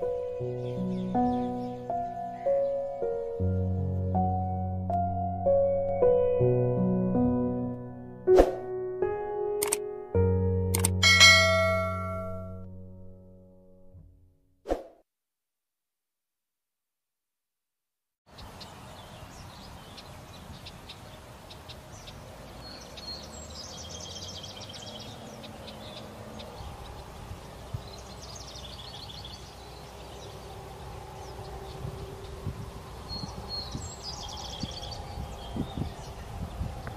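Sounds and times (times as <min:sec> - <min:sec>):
songbird singing a trill: 0:00.0 - 0:06.4, 0:18.3 - 0:36.9.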